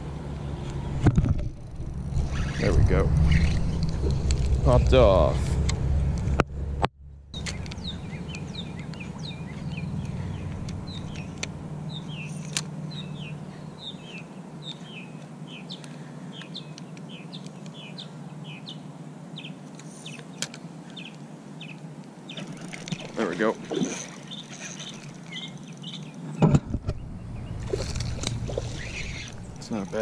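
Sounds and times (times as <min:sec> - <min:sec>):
low steady rumble: 0:00.0 - 0:16.2, 0:24.3 - 0:30.0
bird chirping in falling chirps: 0:07.4 - 0:18.8, 0:23.4 - 0:26.4, 0:28.5 - 0:29.7.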